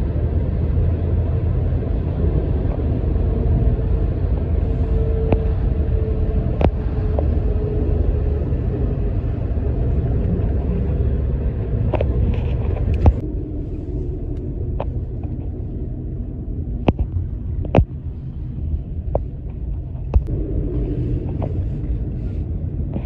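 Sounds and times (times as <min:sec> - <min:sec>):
low rumble of road vehicles: 0:00.0 - 0:23.0.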